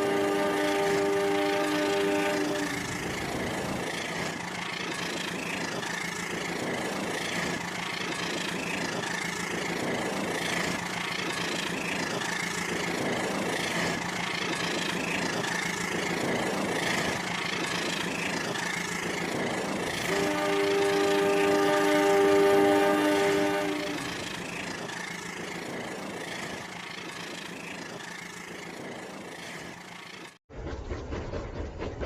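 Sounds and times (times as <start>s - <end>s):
toy train horn: 0.0s - 3.2s, 19.9s - 24.5s
toy train motor hum: 0.0s - 30.4s.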